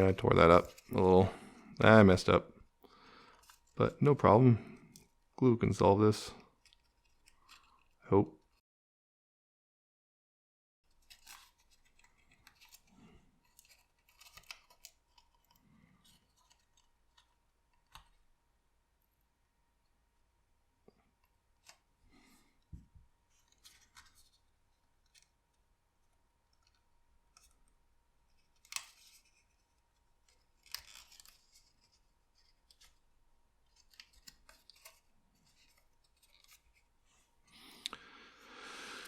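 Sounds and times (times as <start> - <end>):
paper crackling: 10.9 - 18.2, 28.3 - 37.2.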